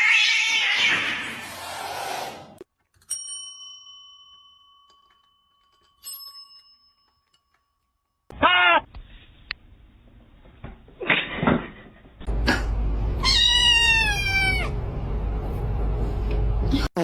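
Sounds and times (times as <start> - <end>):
small metal bell ringing: 3.1 - 8.3.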